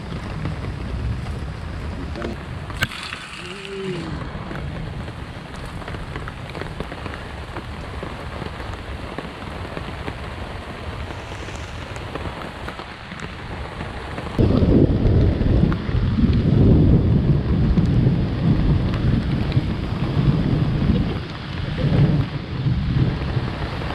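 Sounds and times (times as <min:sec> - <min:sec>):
heavy rain pattering: 0:00.0 - 0:23.9
loud low rumble: 0:14.4 - 0:23.9.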